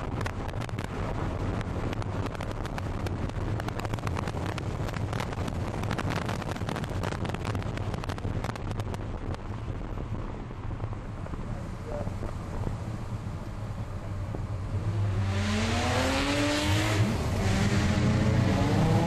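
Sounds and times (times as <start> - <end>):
crackles and knocks: 0.0 - 10.2
car engine running at speed: 0.0 - 19.0
wind buffeting microphone: 0.0 - 19.0.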